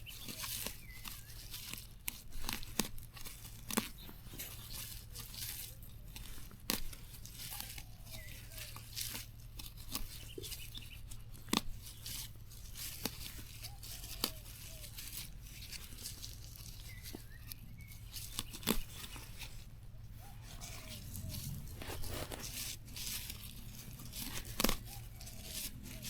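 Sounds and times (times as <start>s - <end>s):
plants being torn by hand: 0.0s - 26.0s
stems snapping: 0.2s - 19.6s, 20.2s - 26.0s.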